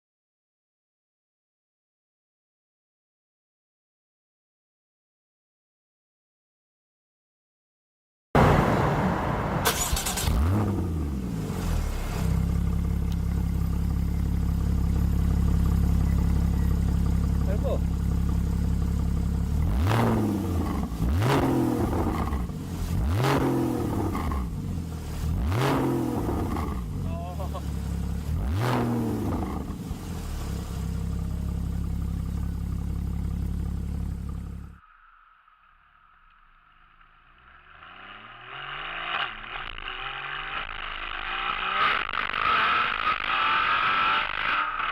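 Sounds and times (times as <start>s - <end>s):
car engine starting and idling: 8.4s - 34.9s.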